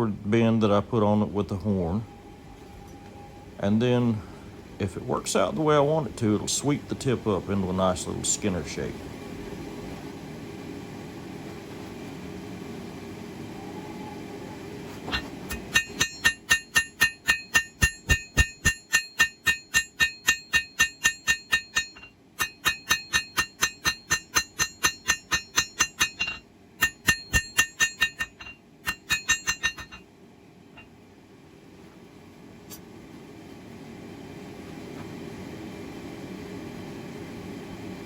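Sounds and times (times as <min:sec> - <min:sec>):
hammer striking steel on anvil: 0:15.1 - 0:30.0.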